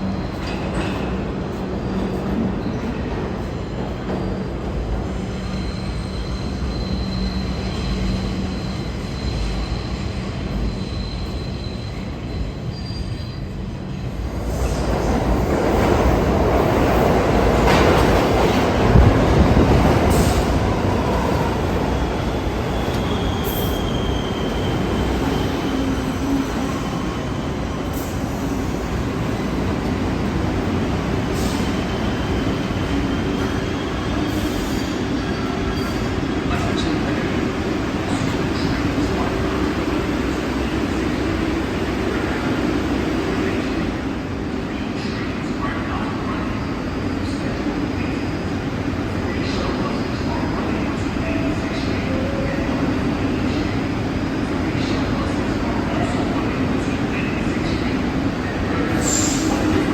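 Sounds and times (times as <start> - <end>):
train wheel squeals: 0.0 - 15.2, 18.9 - 29.7, 30.3 - 42.6, 58.6 - 59.9
subway train running: 0.0 - 59.9.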